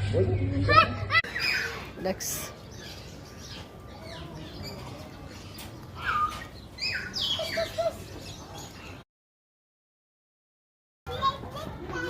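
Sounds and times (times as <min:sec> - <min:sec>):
birds chirping and calling: 0:00.0 - 0:09.0.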